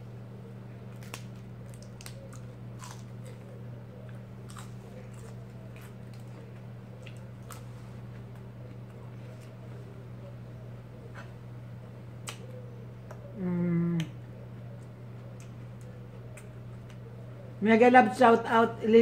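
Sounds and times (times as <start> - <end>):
steady low hum: 0.0 - 19.0
person chewing and crunching: 0.8 - 9.9.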